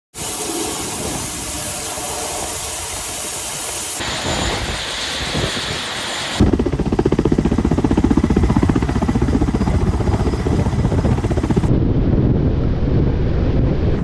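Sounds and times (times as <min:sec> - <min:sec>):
helicopter rushing hiss: 0:00.1 - 0:11.7
helicopter rotor thumping: 0:04.2 - 0:11.7.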